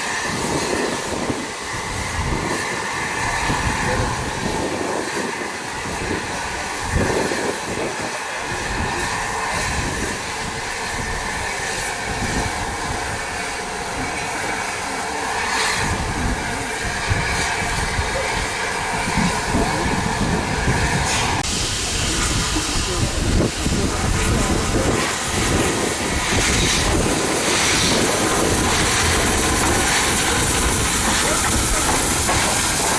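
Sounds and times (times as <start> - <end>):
train rumbling: 0.0 - 32.9
wheels clicking on track: 26.3 - 32.9.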